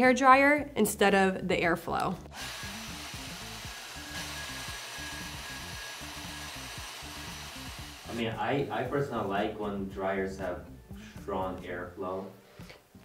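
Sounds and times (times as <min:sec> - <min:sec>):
background music: 0:00.0 - 0:13.0
hair dryer blowing: 0:02.3 - 0:08.2.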